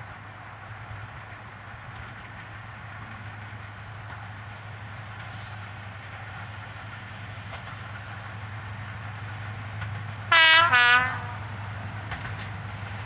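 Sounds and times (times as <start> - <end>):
locomotive two-tone horn: 10.3 - 11.6.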